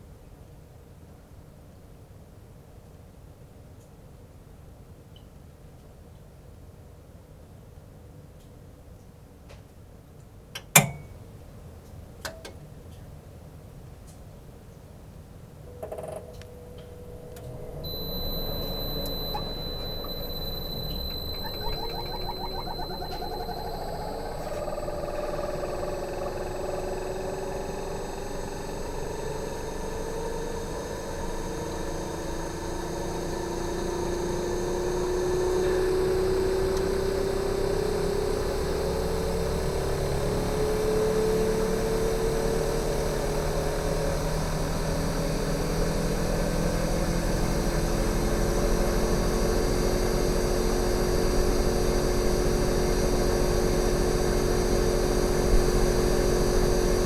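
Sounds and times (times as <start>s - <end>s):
compressor hum rising in pitch: 15.7s - 57.0s.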